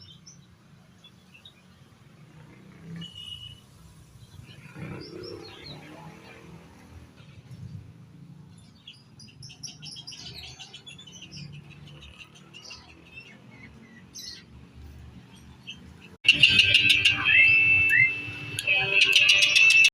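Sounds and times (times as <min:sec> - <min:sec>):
songbirds chirping: 0:00.0 - 0:16.2
loud whistled birdsong: 0:03.0 - 0:06.0.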